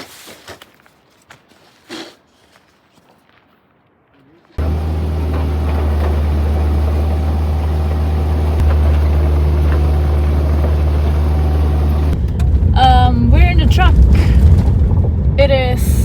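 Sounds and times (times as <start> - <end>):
truck engine and road drone: 4.6 - 16.0.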